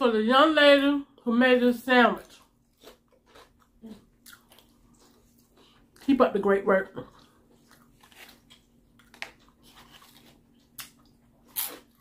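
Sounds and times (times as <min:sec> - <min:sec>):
faint steady hum: 0:00.0 - 0:12.0
person chewing food: 0:02.2 - 0:06.1, 0:07.1 - 0:12.0.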